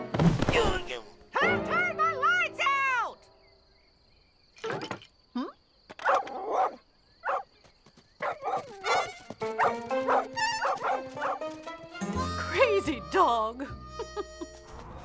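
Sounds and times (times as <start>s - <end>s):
background music: 0.0s - 3.3s, 9.4s - 15.0s
dog barking: 6.0s - 7.5s, 8.2s - 11.4s.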